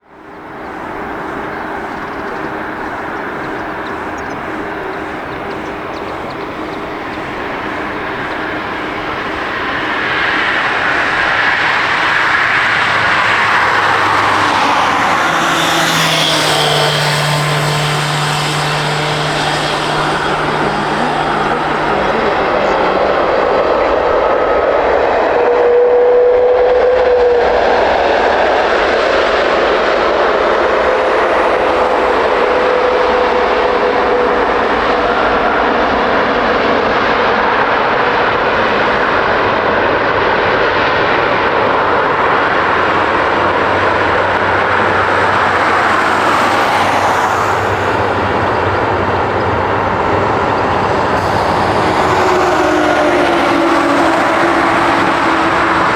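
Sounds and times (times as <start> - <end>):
jet engine whine: 0.0 - 55.9
jet engines roaring: 0.0 - 55.9.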